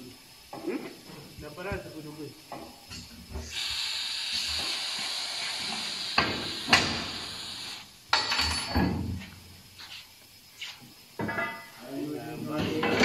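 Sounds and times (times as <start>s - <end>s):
air hissing: 0.0s - 13.0s.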